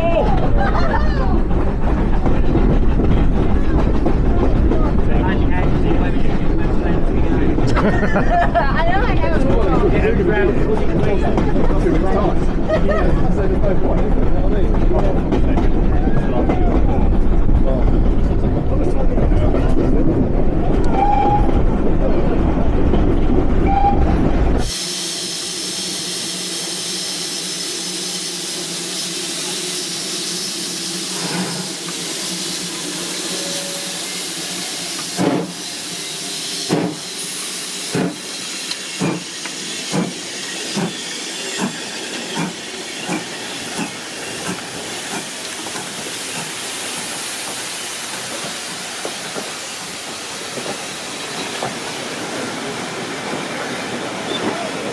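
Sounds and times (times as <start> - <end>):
steam locomotive hissing: 0.0 - 54.9.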